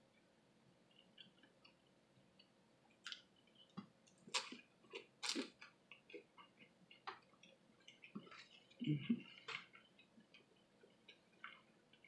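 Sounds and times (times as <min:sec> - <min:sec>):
lip clicks: 0:02.4 - 0:04.6.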